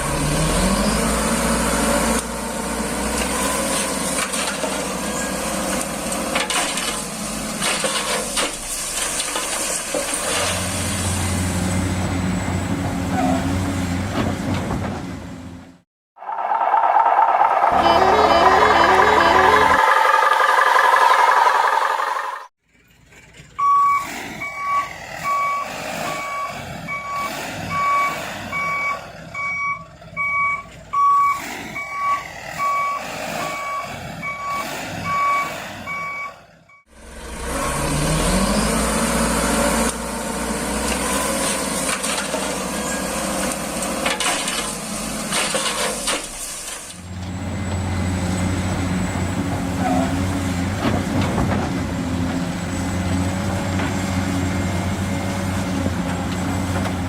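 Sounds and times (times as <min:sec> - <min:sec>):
toy truck reversing beeper: 0:17.0 - 0:22.5, 0:23.6 - 0:36.9.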